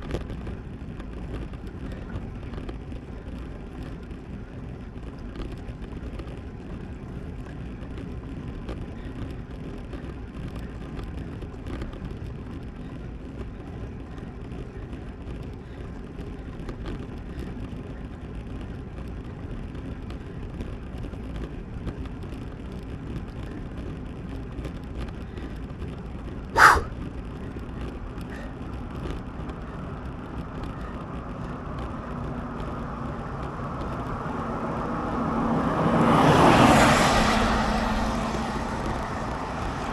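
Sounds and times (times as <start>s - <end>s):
wind and road rush: 0.0s - 39.9s.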